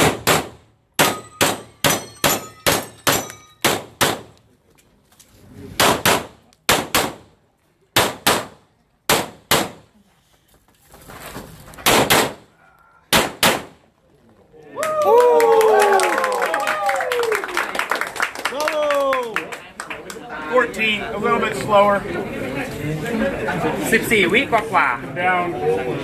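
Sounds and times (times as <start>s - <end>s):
rapid pistol fire: 0.0s - 4.3s, 5.8s - 7.3s, 8.0s - 9.9s, 11.8s - 12.5s, 13.1s - 13.8s
steel targets ringing: 1.0s - 3.9s.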